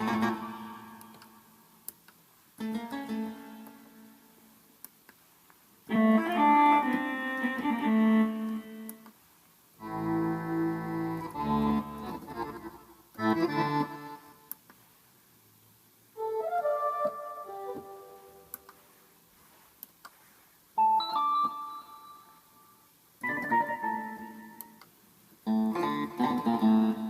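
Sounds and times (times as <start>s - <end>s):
electronic keyboard phrases: 0.0s - 1.5s, 5.9s - 9.0s, 9.8s - 14.4s, 23.2s - 24.8s, 25.5s - 27.0s.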